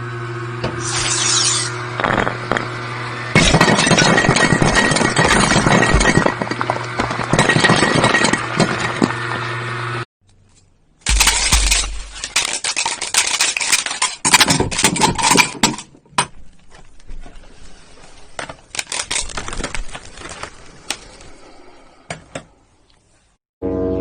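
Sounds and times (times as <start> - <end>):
toy blocks clattering: 11.1 - 15.9, 18.8 - 19.6.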